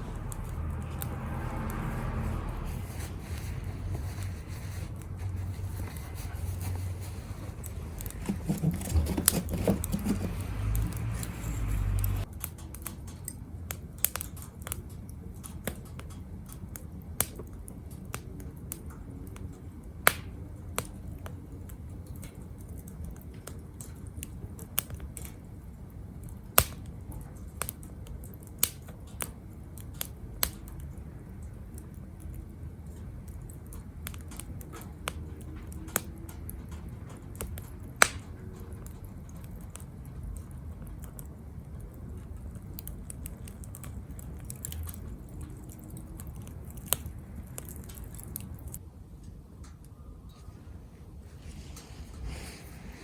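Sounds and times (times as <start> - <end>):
low rumble: 0.0 - 8.3
wood fire crackling and popping: 0.0 - 48.8.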